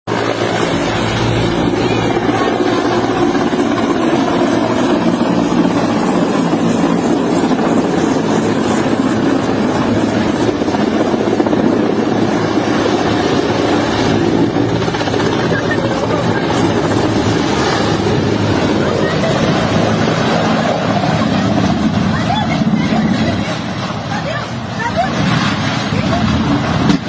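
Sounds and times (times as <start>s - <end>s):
helicopter rotor and engine: 0.0s - 27.0s.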